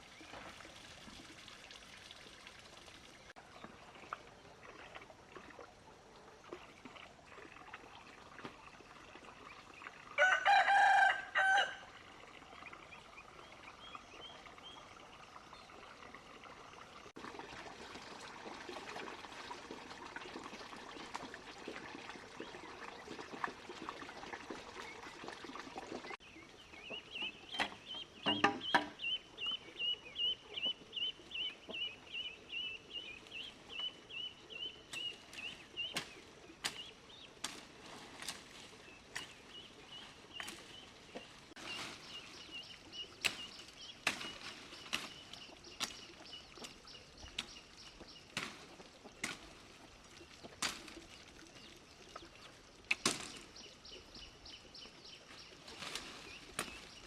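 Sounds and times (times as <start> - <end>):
rooster crowing: 10.2 - 12.0.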